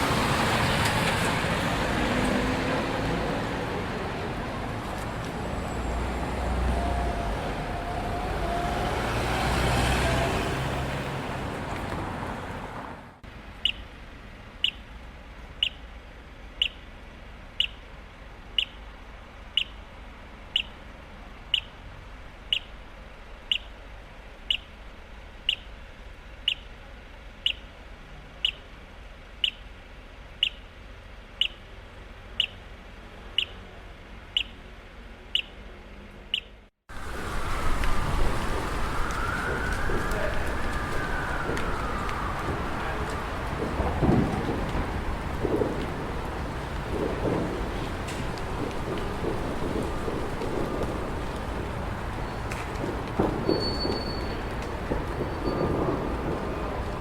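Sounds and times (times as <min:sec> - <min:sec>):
vehicle passing close: 0:00.0 - 0:13.2, 0:36.9 - 0:57.0
city street traffic: 0:00.0 - 0:57.0
pedestrian crossing signal chirping: 0:13.6 - 0:14.0, 0:14.6 - 0:14.9, 0:15.5 - 0:15.9, 0:16.5 - 0:17.9, 0:18.5 - 0:19.9, 0:20.5 - 0:20.9, 0:21.5 - 0:21.8, 0:22.4 - 0:23.8, 0:24.4 - 0:24.8, 0:25.4 - 0:25.8, 0:26.4 - 0:26.8, 0:27.4 - 0:27.8, 0:28.4 - 0:28.7, 0:29.4 - 0:29.7, 0:30.4 - 0:32.7, 0:33.3 - 0:36.7, 0:53.2 - 0:56.4.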